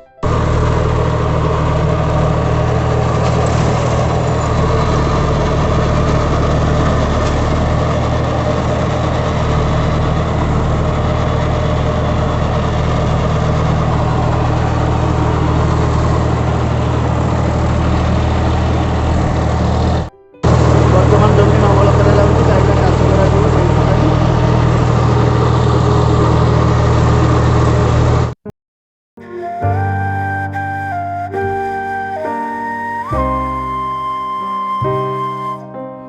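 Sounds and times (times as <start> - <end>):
tractor engine running: 0.2 - 28.3.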